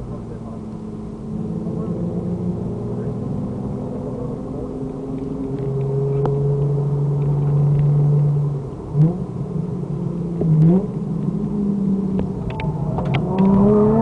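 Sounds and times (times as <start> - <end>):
car engine under load: 0.0 - 14.0.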